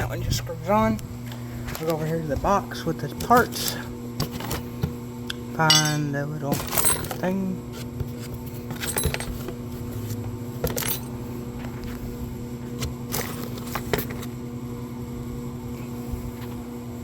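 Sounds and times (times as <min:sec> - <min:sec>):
steady low hum: 0:00.0 - 0:17.0
metal fasteners clinking: 0:05.7 - 0:07.2, 0:08.8 - 0:09.5.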